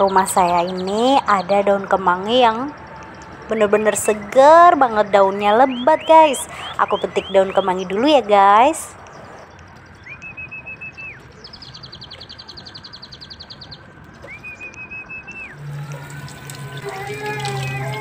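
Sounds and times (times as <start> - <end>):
whistled bird calls: 5.6 - 8.0, 10.0 - 18.0
tap water running: 15.6 - 18.0.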